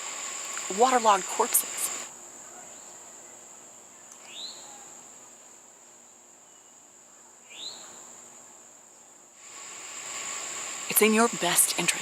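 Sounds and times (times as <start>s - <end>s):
insects droning: 0.0s - 12.0s
bird chirping: 4.0s - 4.8s.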